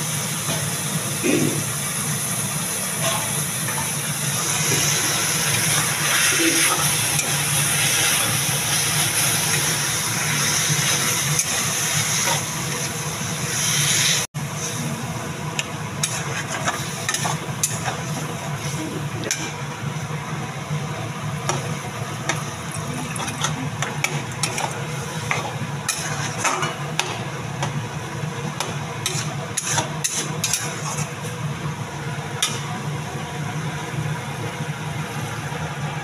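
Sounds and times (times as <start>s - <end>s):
food frying in a wok: 0.0s - 36.0s
metal spatula scraping wok: 16.0s - 19.6s, 24.4s - 26.5s, 29.0s - 31.2s.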